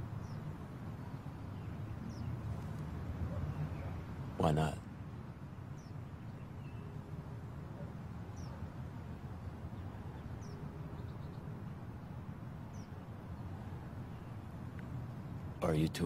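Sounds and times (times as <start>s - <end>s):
small bird chirping: 0.2s - 4.0s.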